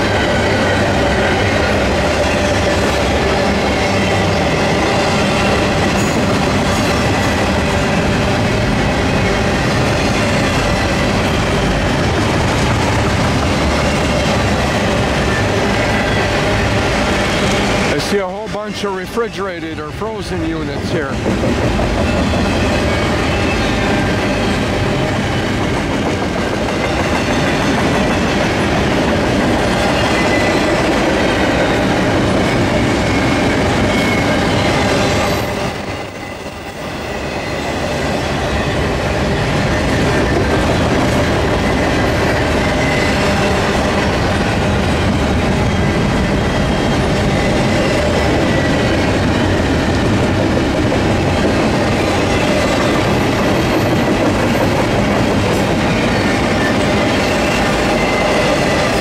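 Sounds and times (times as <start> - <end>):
freight train rolling past: 0.0 - 59.0
steel wheels clattering on rail: 0.0 - 59.0
high wheel squeal: 22.1 - 25.9, 31.5 - 40.5, 55.6 - 59.0.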